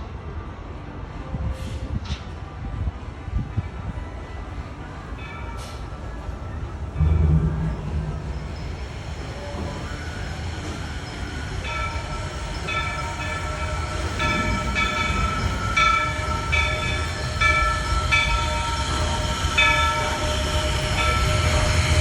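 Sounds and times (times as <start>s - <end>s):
steam train rumbling: 0.1s - 22.0s
train bell ringing: 6.9s - 22.0s.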